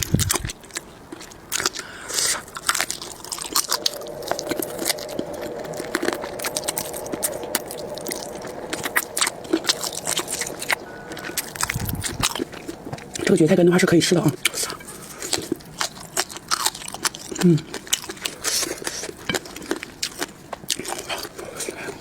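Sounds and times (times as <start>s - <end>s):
chewing chicken feet crunches: 0.0s - 5.2s, 14.2s - 22.0s.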